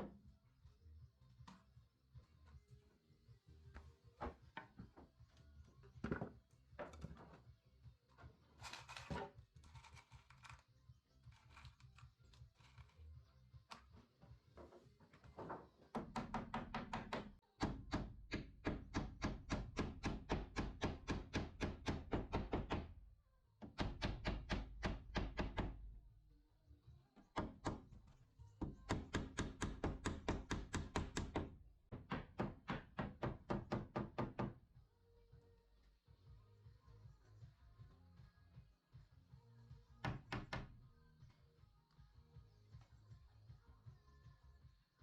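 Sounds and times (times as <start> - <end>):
rapid hammer strikes: 16.0 - 22.9.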